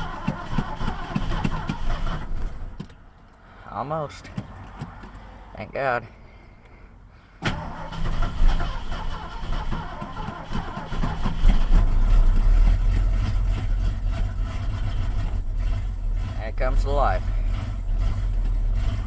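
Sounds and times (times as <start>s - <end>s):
engine running roughly: 0.0s - 2.4s, 7.5s - 19.0s
engine starter cranking: 0.0s - 2.6s, 7.4s - 15.9s.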